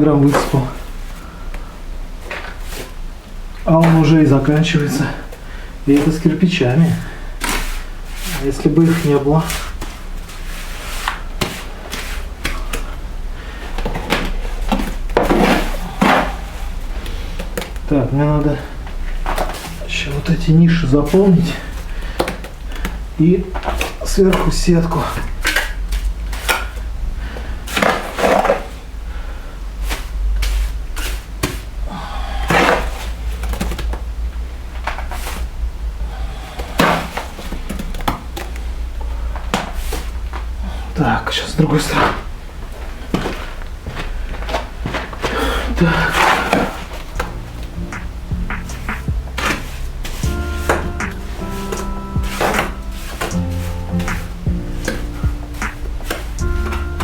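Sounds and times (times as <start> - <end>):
hand tool scraping wet concrete: 7.4 - 9.8.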